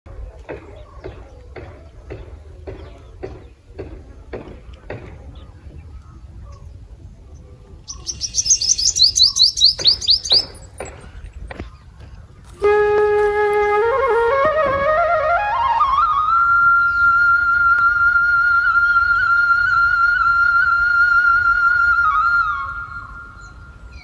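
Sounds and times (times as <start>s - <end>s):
small bird singing: 0.1s - 12.6s, 16.6s - 17.6s, 21.8s - 24.0s
flute-like background music: 12.5s - 24.0s.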